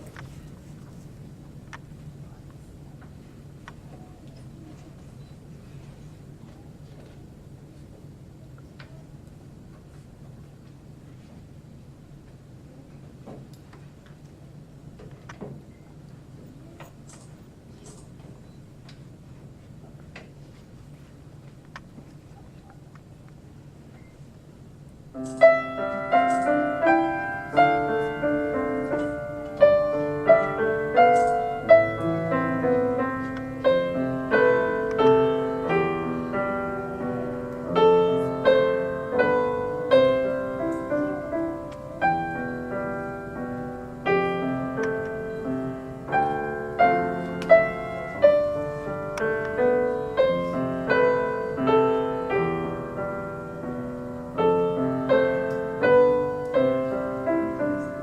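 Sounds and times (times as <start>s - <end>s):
piano duet: 25.1s - 58.0s.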